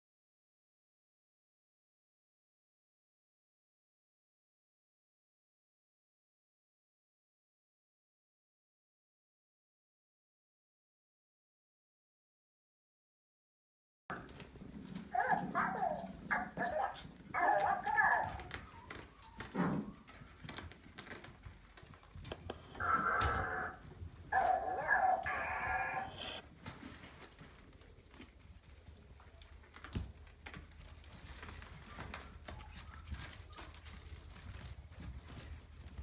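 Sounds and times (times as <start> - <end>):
puppy crying: 15.1 - 20.1, 22.5 - 26.4.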